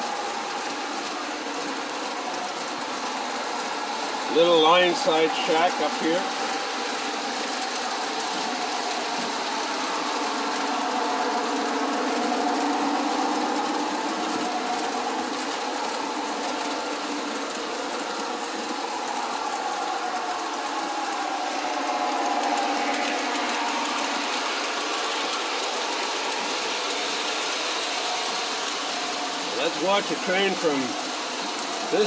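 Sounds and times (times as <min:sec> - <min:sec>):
wheels rolling on rails: 0:00.0 - 0:32.0
model train motor whir: 0:22.2 - 0:32.0.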